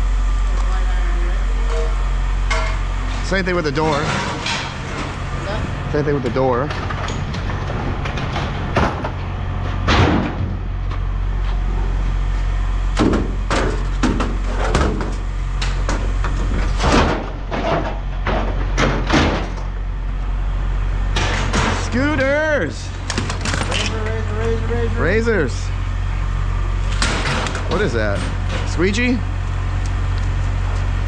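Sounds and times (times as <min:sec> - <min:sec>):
low engine hum: 0:00.0 - 0:31.0
scrap metal clanking and banging: 0:01.6 - 0:05.3, 0:13.0 - 0:19.8, 0:21.1 - 0:22.3, 0:26.8 - 0:28.9.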